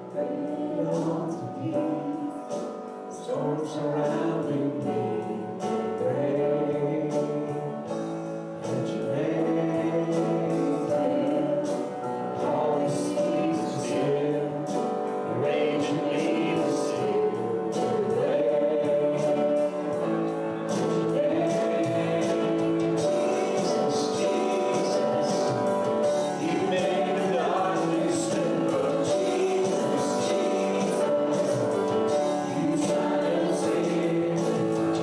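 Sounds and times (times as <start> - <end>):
choir singing gospel song: 0.0 - 35.0
musical accompaniment: 0.0 - 35.0
steady percussion beat: 8.6 - 35.0.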